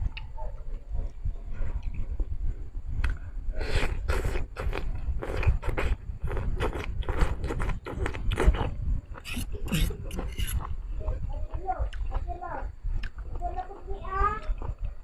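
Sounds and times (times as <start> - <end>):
wet chewing of noodles: 3.0 - 11.2.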